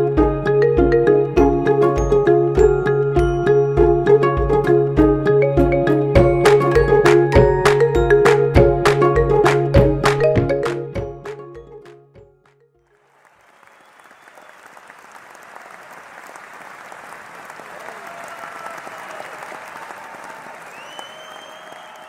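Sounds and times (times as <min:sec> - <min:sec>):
crowd applauding: 0:06.2 - 0:22.0
faint cheering voices: 0:17.7 - 0:22.0.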